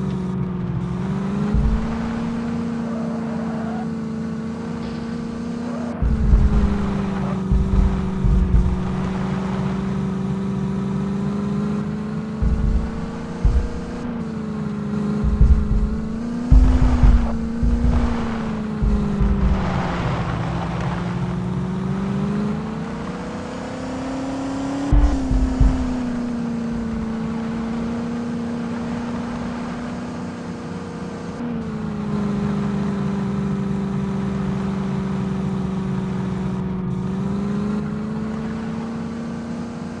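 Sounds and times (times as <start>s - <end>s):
tractor engine running: 0.0s - 40.0s
short low thumps: 0.5s - 2.8s, 4.7s - 10.4s, 12.3s - 21.0s, 24.9s - 28.2s.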